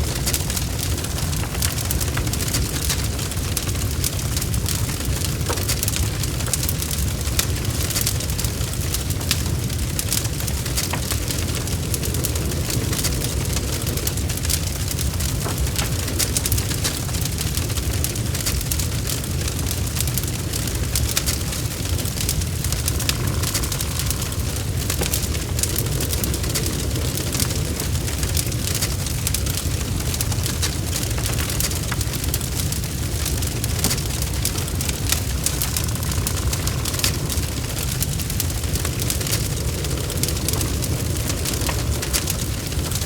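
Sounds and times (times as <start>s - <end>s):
fire flames roaring: 0.0s - 43.0s
logs crackling and popping: 0.0s - 43.0s.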